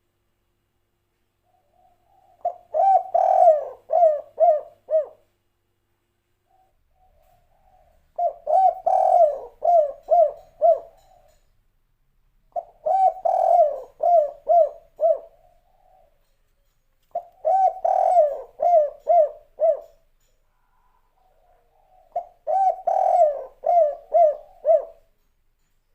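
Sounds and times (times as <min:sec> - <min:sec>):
dove cooing: 0:01.4 - 0:05.3, 0:06.4 - 0:11.4, 0:12.5 - 0:16.4, 0:17.1 - 0:25.2.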